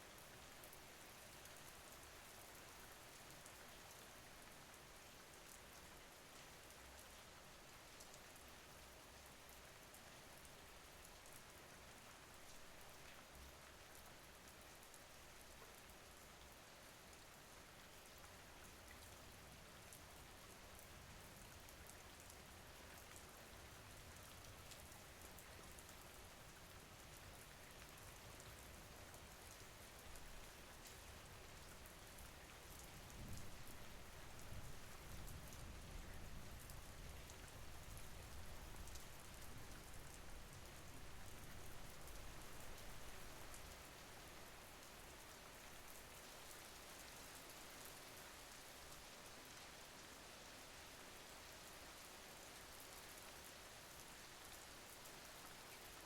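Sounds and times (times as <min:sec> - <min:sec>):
rain patter: 0:00.0 - 0:56.0.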